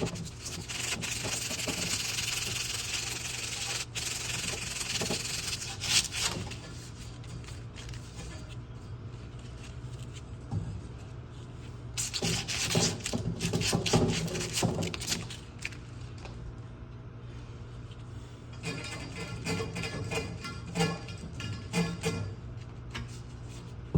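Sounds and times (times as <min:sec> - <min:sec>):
scrubbing copper pipe: 0:00.0 - 0:08.5, 0:12.0 - 0:15.4.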